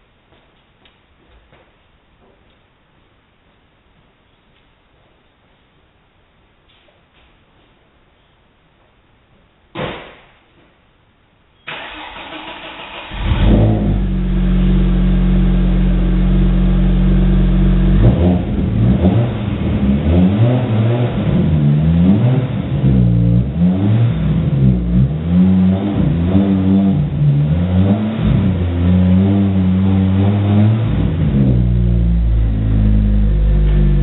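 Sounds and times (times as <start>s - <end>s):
engine starter cranking: 11.7s - 13.6s
car engine idling and revving: 11.8s - 34.0s.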